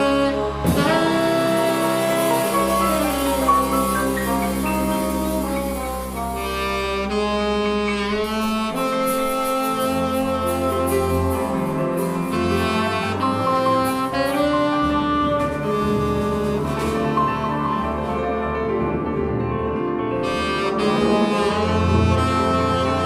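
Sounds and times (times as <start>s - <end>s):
drums and cymbals: 0.0s - 7.2s, 8.2s - 17.6s
saxophone: 0.0s - 18.8s, 20.2s - 23.0s
bass: 0.0s - 23.0s
bass trumpet: 0.0s - 23.0s
piano: 0.0s - 23.0s.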